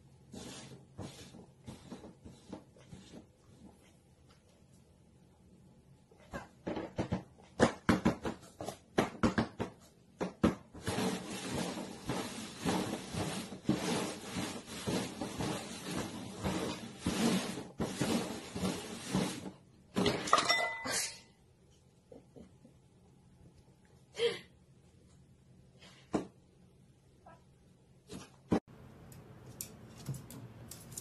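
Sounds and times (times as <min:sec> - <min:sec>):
cups scraping across cardboard: 0:00.2 - 0:03.9, 0:10.8 - 0:19.6.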